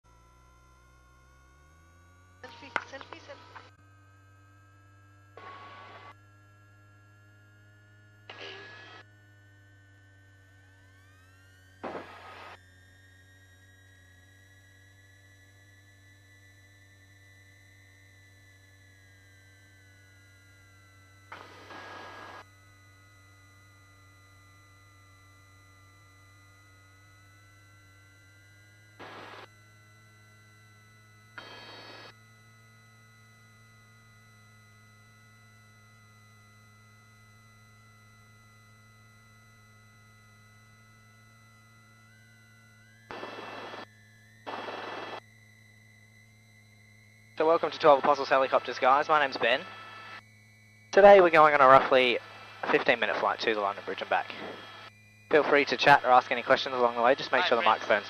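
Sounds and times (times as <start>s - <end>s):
intercom low hum: 0.1s - 12.6s, 19.4s - 58.0s
high electronic whine: 0.1s - 58.0s
bursts of noise: 11.8s - 12.6s, 43.1s - 43.8s, 44.4s - 45.2s.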